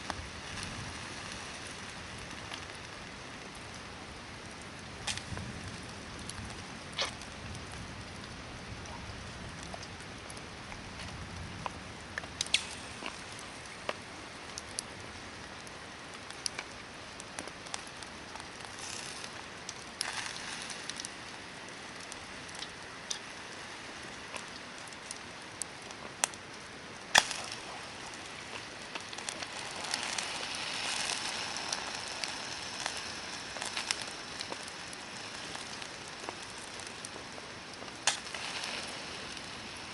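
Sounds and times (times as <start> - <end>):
campfire crackling: 0.0 - 39.9
fire hissing: 0.0 - 39.9
sharp fire pops: 0.0 - 39.9.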